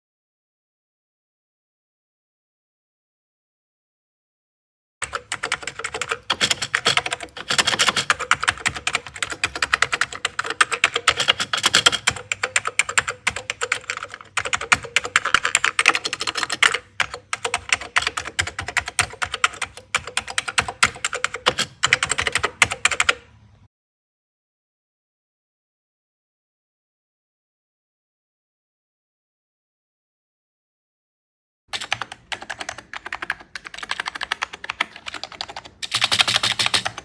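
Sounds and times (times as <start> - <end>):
fast typing on computer keyboard: 5.0 - 23.3, 31.7 - 37.0.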